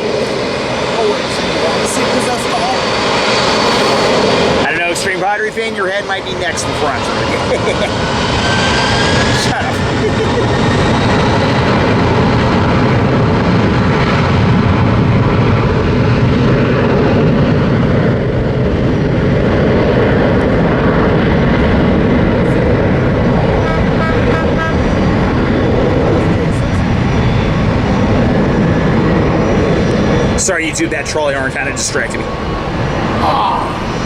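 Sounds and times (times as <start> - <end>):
jet engines at high power: 0.0 - 34.0
trolley horn short notes: 23.6 - 25.0.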